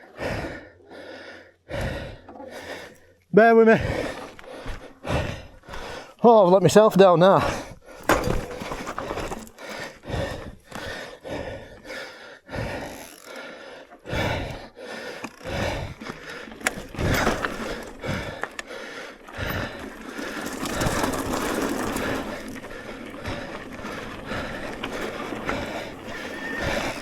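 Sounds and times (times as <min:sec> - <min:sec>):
bike tyre noise on rocky trail: 0:00.2 - 0:27.0
bike rattling: 0:03.8 - 0:27.0.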